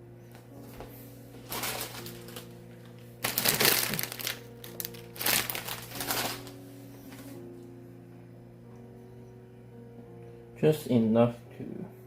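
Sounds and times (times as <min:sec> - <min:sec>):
soft background music: 0:00.0 - 0:12.0
noodle packaging crinkling: 0:01.4 - 0:07.2.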